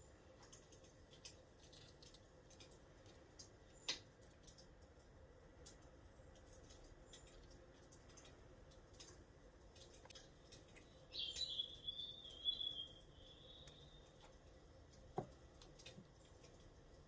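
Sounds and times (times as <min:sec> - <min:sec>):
faint scattered clicks: 0:00.3 - 0:17.0
small bird trill: 0:10.8 - 0:14.2.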